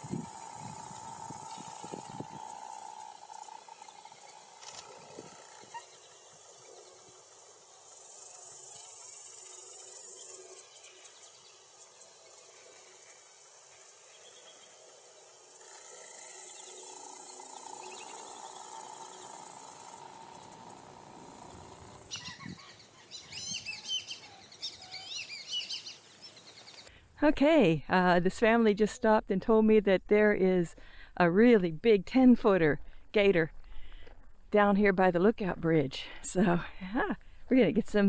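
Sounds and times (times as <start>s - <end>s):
birds chirping: 0.0s - 7.3s, 16.4s - 26.9s
high insect drone: 0.0s - 26.9s.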